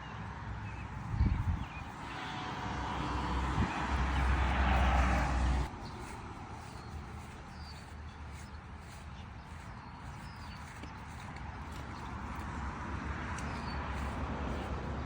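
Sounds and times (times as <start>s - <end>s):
small birds chirping: 0.0s - 2.4s, 5.6s - 12.4s, 13.4s - 15.0s.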